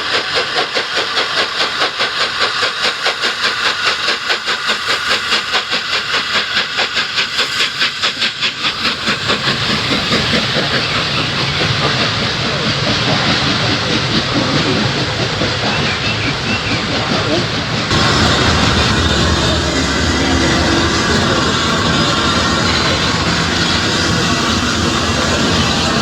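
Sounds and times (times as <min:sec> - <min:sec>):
steam locomotive chuffing: 0:00.0 - 0:26.0
train rumbling by: 0:00.0 - 0:26.0.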